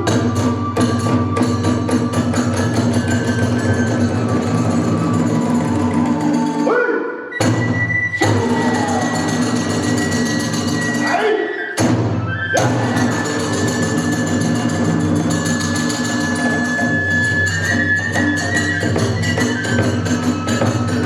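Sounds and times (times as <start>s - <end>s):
bamboo flute high note: 11.0s - 14.6s.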